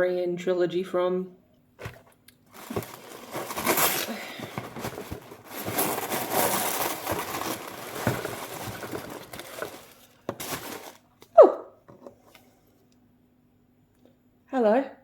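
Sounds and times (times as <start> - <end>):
packaging crinkling and rustling: 1.8 - 11.3.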